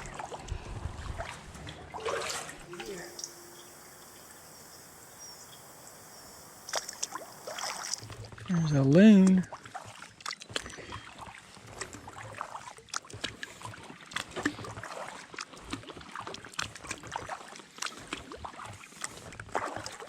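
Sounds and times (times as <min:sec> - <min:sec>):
paddle dipping in water: 0:00.0 - 0:20.0
water splashes and drips: 0:00.0 - 0:20.0.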